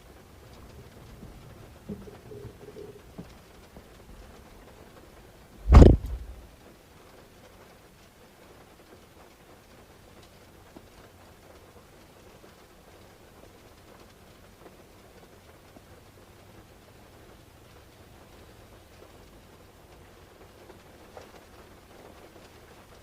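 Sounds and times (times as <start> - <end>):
faint background noise: 0.0 - 23.0
heavy thump: 5.6 - 6.4.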